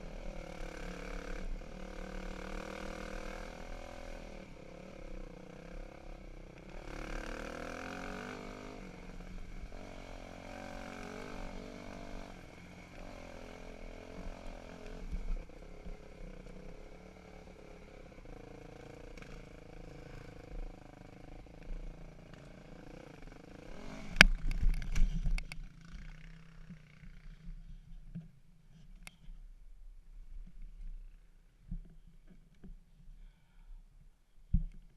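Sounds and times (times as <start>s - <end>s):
dirt bike engine revving: 0.0s - 24.8s.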